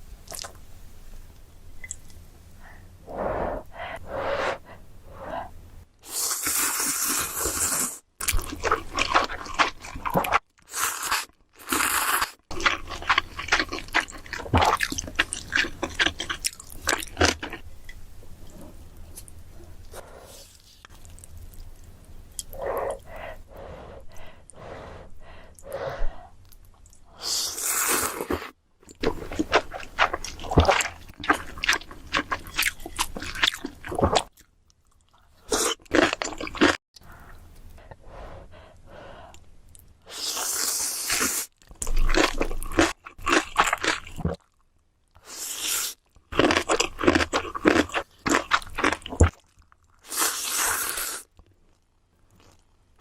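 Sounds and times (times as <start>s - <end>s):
crunchy bites and chewing: 7.6s - 17.6s, 41.1s - 44.6s, 46.3s - 51.0s.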